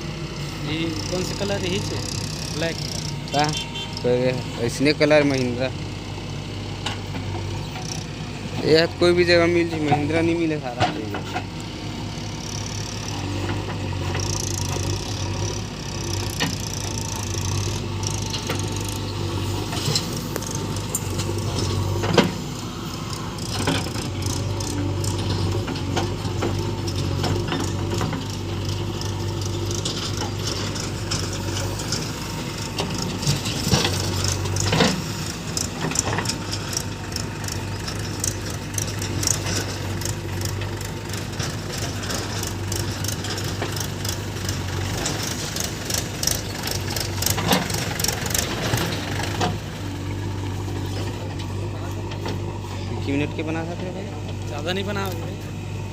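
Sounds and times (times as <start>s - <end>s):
tractor diesel engine running: 0.0s - 55.9s
metallic clanks and rattles: 23.4s - 49.7s.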